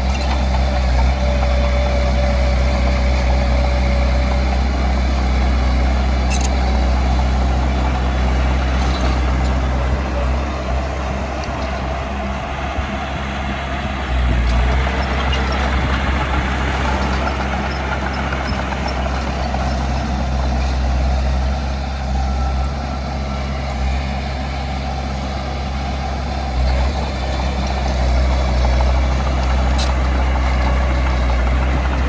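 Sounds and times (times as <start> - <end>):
heavy diesel engine running: 0.0 - 32.0.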